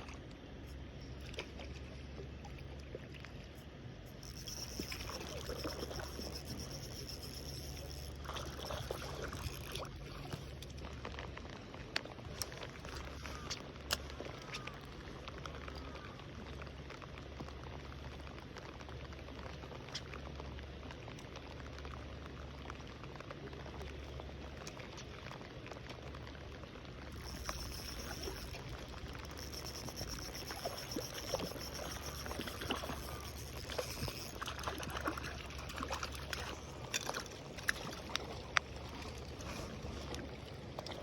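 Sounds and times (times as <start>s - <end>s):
water trickling and splashing: 0.0s - 41.0s
small clicks and ticks: 3.2s - 39.0s
thin steady high tone: 4.1s - 9.6s, 27.1s - 35.4s.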